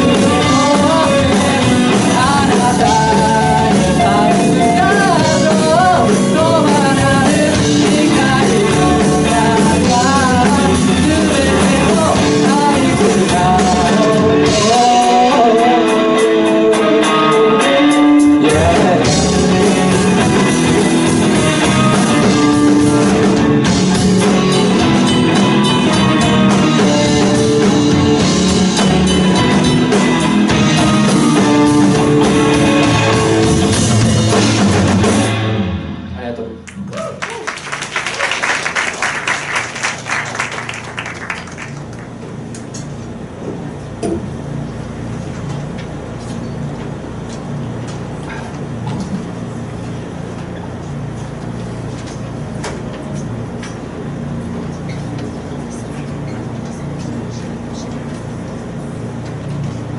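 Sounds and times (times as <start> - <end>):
pop-rock song: 0.0 - 36.3
drum roll: 0.0 - 42.4.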